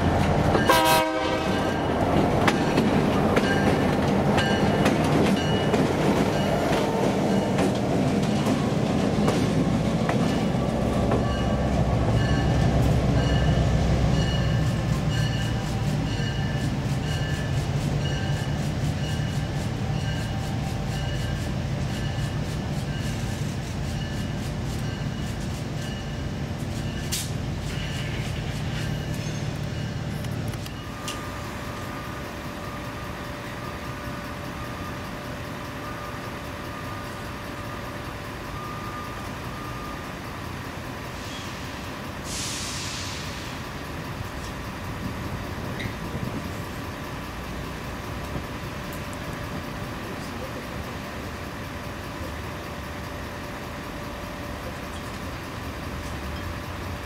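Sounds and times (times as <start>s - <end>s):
distant train hum: 0.0s - 57.0s
train rumble with whining tones: 0.0s - 57.0s
air hiss: 41.2s - 43.6s.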